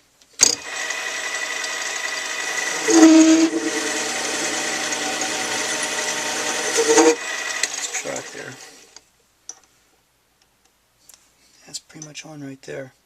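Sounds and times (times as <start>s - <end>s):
lathe motor whine: 0.5s - 8.9s.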